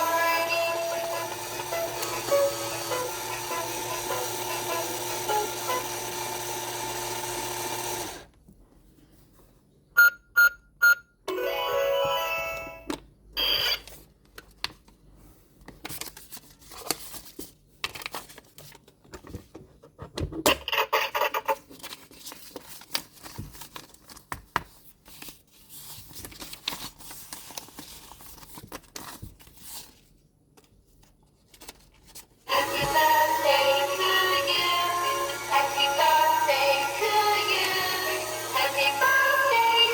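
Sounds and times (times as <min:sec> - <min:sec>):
electronic toy beeps: 0:10.0 - 0:11.1, 0:13.4 - 0:13.9
plastic packaging rustling: 0:21.7 - 0:32.4.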